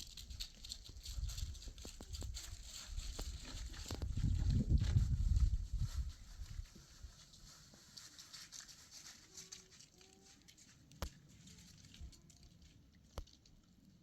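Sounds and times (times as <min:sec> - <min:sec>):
faint uneven crackle: 0:00.0 - 0:04.2, 0:06.1 - 0:14.0.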